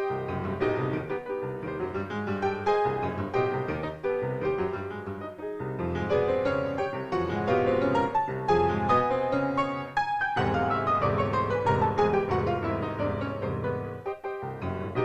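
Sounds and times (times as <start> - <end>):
fast stormy solo piano: 0.0 - 15.0.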